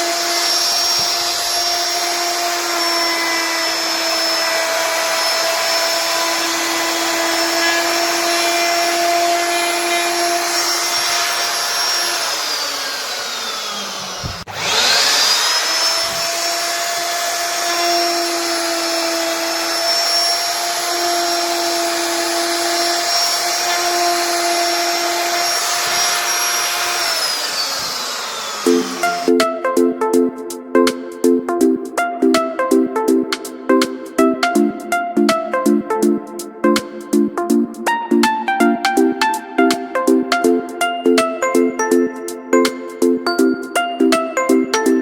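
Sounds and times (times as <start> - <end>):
router spindle motor whining: 0.0 - 29.6
cutting noise: 0.0 - 30.3.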